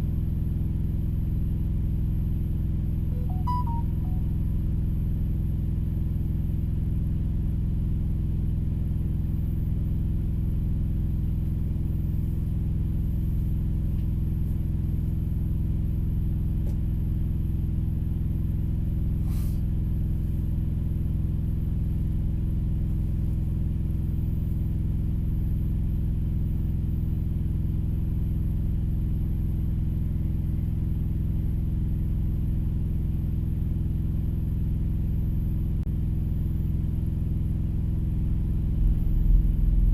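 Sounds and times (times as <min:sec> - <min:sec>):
diesel engine idling: 0:38.3 - 0:39.9.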